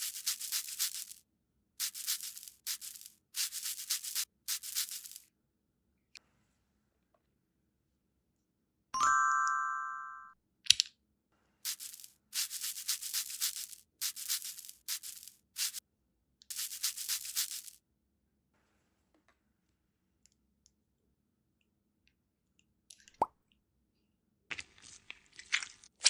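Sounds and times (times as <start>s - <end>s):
scratchy hissing noise: 0.0s - 1.2s, 1.8s - 5.2s, 11.7s - 15.8s, 16.5s - 17.8s
bell-like ding: 9.0s - 10.4s.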